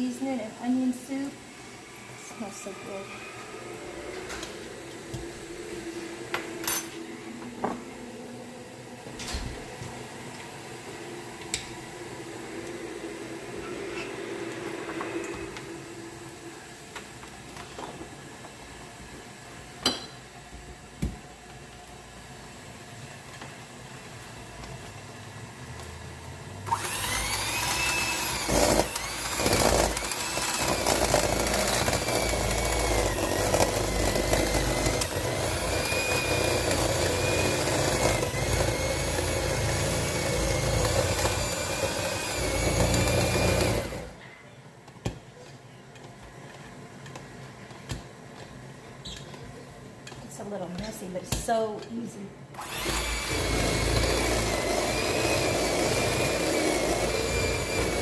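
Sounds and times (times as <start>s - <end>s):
kitchen appliance motor whining: 0.0s - 18.8s, 26.6s - 44.2s, 52.5s - 58.0s.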